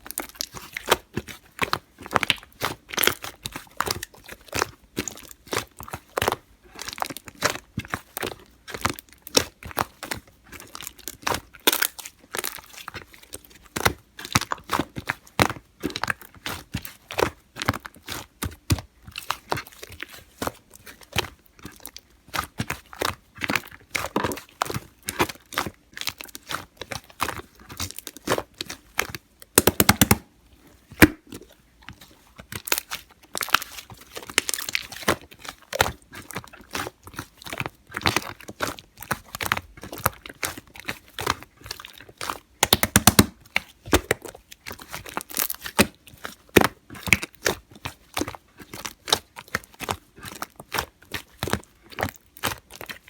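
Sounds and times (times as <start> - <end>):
slime squished by hand: 29.6 - 30.3, 42.6 - 44.1.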